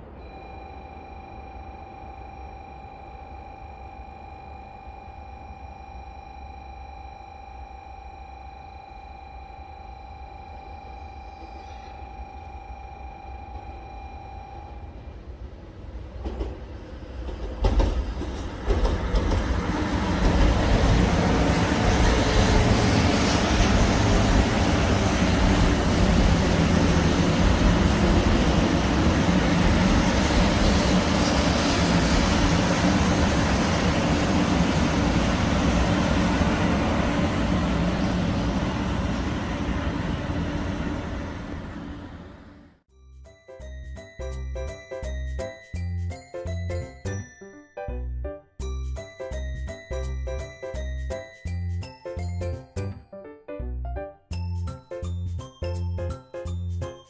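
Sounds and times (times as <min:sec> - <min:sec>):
bullet train rumbling: 0:13.4 - 0:42.7.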